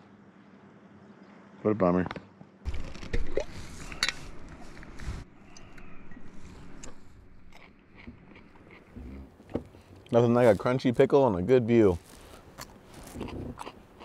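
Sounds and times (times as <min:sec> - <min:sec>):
crunching and chewing a pickle: 0:06.8 - 0:10.7, 0:12.0 - 0:14.0.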